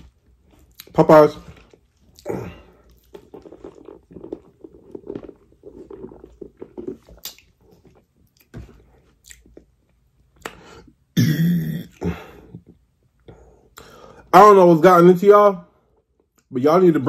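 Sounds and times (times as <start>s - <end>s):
person chewing crunchy food: 0.0s - 10.7s.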